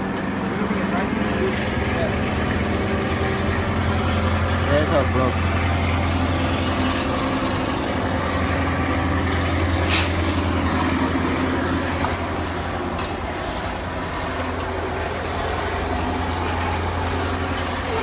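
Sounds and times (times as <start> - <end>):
diesel locomotive idling: 0.0 - 18.0
short hiss: 9.8 - 10.2.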